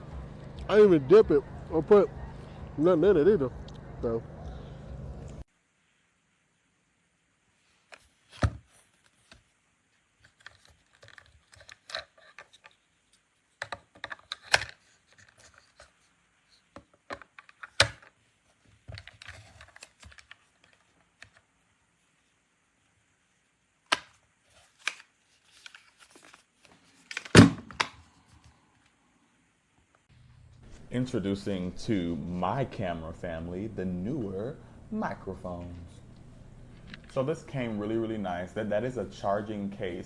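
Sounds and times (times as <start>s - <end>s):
objects being handled: 7.6s - 22.4s, 23.9s - 29.0s.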